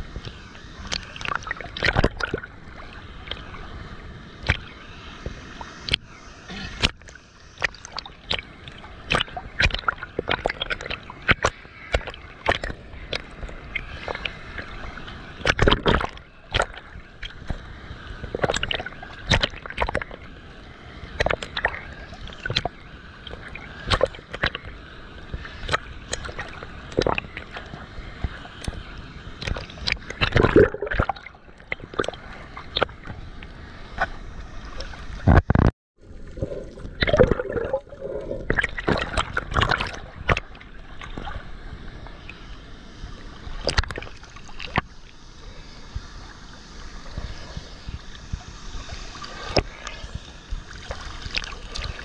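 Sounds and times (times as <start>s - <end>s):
sharp water splashes: 6.6s - 13.2s, 29.4s - 32.9s, 36.7s - 41.3s.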